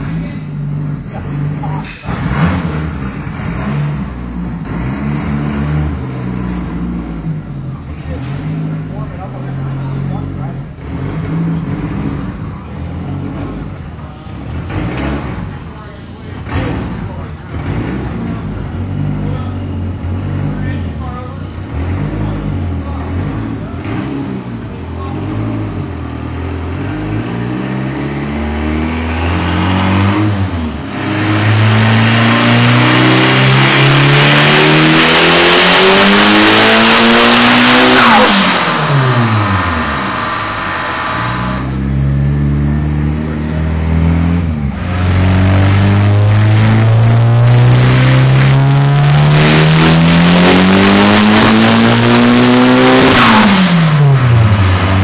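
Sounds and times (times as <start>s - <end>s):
car engine full-throttle pulls: 0.0s - 55.0s.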